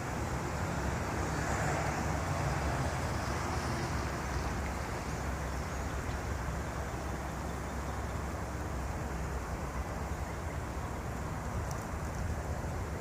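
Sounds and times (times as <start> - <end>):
strong wind buffeting microphone: 10.9 - 13.0.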